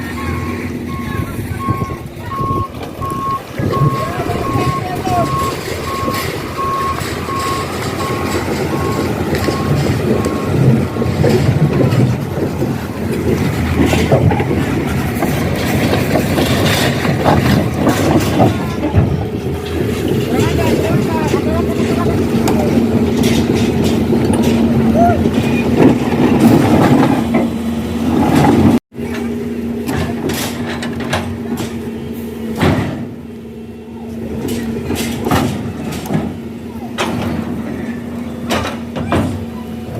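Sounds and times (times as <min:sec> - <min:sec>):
reversing alarm beeping: 0:00.0 - 0:11.4
truck diesel engine rumbling: 0:00.0 - 0:39.9
metallic knocks and clanks: 0:04.6 - 0:31.8, 0:34.4 - 0:36.4.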